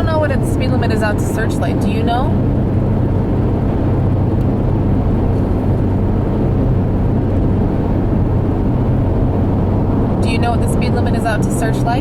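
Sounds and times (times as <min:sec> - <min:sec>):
car cabin road and engine noise: 0:00.0 - 0:12.0.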